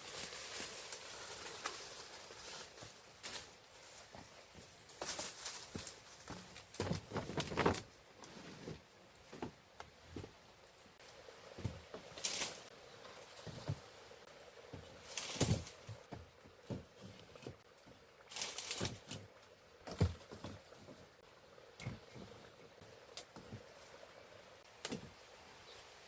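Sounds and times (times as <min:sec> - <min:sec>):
material rustling and scraping: 0:00.0 - 0:11.0.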